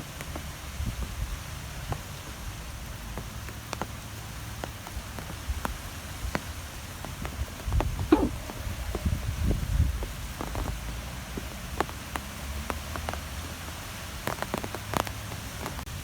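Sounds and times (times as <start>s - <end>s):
wind blowing with low rumble: 7.1s - 11.9s.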